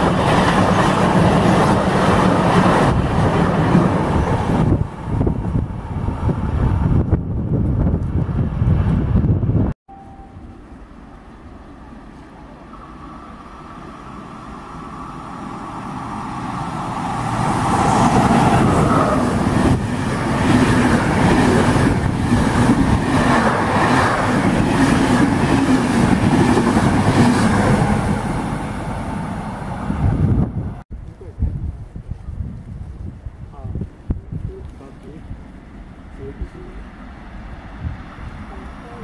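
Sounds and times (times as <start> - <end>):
passenger train passing: 0.0 - 30.8, 32.8 - 39.0
train whine dropping in pitch: 9.9 - 20.3.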